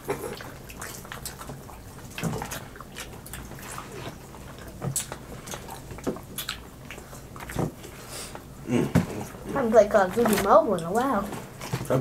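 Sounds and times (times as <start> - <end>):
wet chewing and lip-smacking: 0.0 - 8.5.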